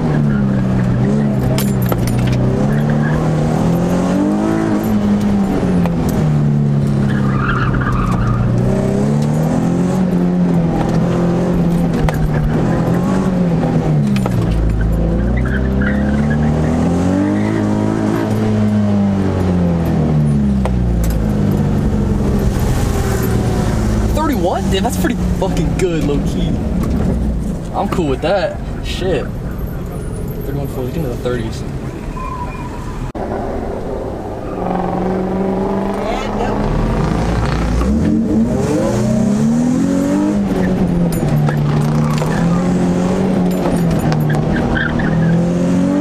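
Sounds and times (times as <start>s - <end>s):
car engine revving: 0.0s - 46.0s
tyre squeal: 7.0s - 8.9s, 14.8s - 18.4s, 29.4s - 33.1s, 41.5s - 42.9s, 43.5s - 45.5s.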